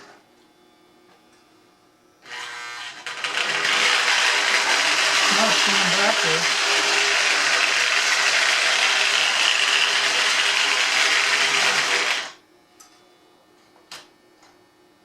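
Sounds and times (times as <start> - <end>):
toy train motor whirring: 2.3 - 12.4.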